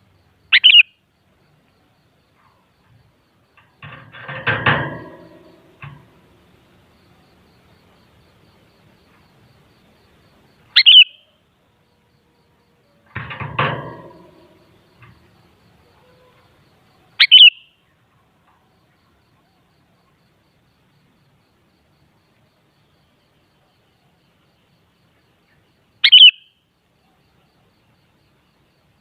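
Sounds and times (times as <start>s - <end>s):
bird double-note calls: 0.5s - 0.9s, 10.8s - 11.3s, 17.2s - 17.7s, 26.0s - 26.5s.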